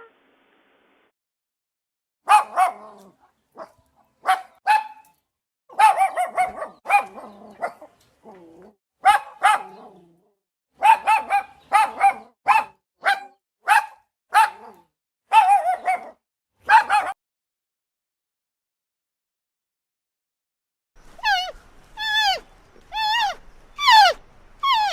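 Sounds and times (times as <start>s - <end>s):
small dog yapping: 2.3s - 10.0s, 10.8s - 17.2s, 21.2s - 24.9s.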